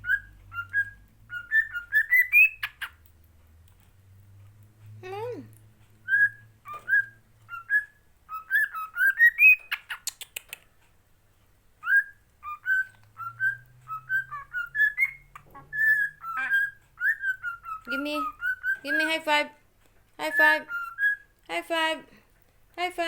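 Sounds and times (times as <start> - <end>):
parrot whistling: 0.0 - 3.0, 6.0 - 10.1, 11.8 - 19.2, 20.3 - 21.3.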